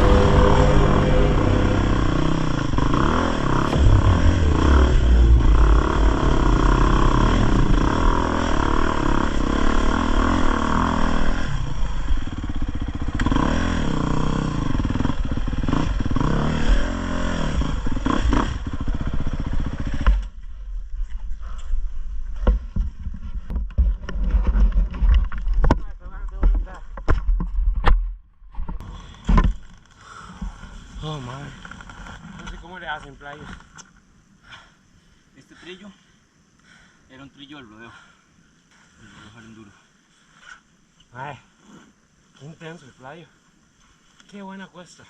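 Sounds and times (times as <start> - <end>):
low rumble: 0.0 - 13.1
dirt bike engine revving: 0.0 - 20.0.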